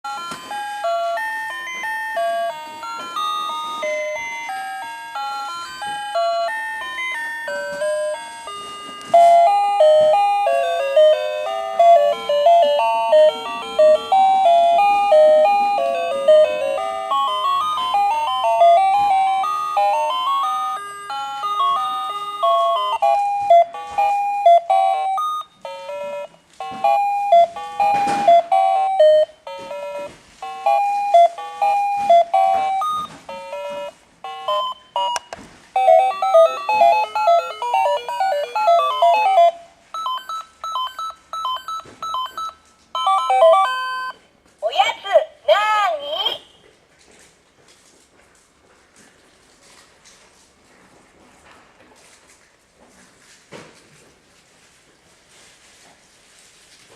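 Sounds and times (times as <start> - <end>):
toy beeping melody: 0.1 - 44.2.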